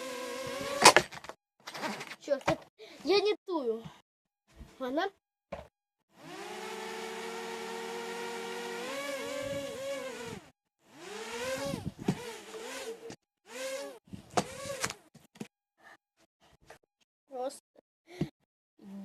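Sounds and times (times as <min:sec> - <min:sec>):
drone motors whining: 0:00.0 - 0:01.0, 0:06.1 - 0:15.0.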